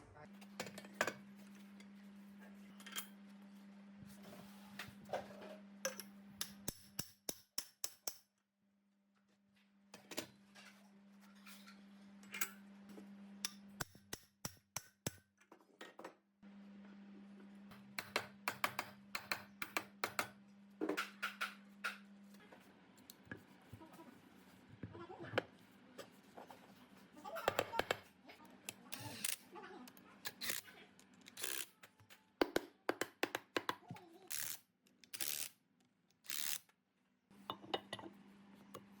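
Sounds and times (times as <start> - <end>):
small tools clicking on metal: 28.6 - 29.4, 30.2 - 31.8, 34.3 - 35.5, 36.1 - 36.7.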